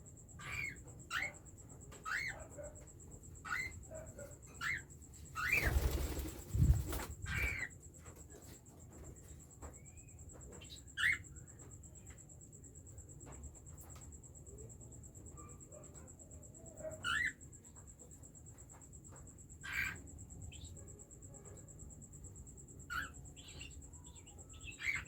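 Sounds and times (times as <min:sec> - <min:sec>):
wings flapping: 0:05.4 - 0:07.6.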